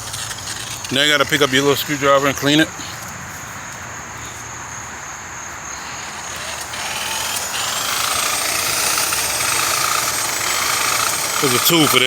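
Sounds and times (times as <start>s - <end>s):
screwdriver scraping spinning pad: 0.0s - 3.1s, 5.8s - 12.0s
electric buffer whine: 5.8s - 12.0s.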